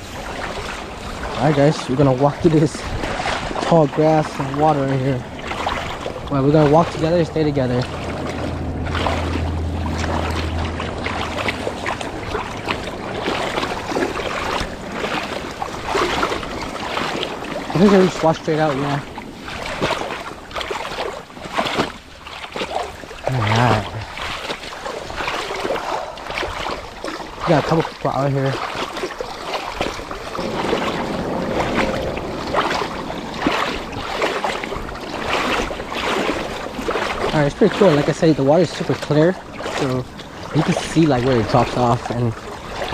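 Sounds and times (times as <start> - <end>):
footsteps sloshing through water: 0.0 - 42.9
low steady hum: 3.8 - 15.6, 30.3 - 37.3
wind noise: 29.8 - 37.4.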